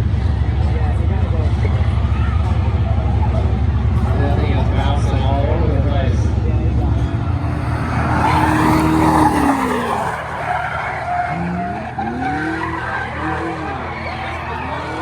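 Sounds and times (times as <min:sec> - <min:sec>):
racing car engines: 0:00.0 - 0:15.0
tyres skidding: 0:01.5 - 0:15.0.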